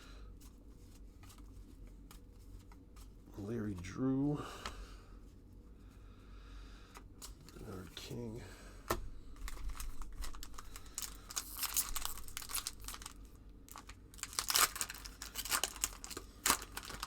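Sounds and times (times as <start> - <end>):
card pack wrapper crinkling: 9.4 - 17.0.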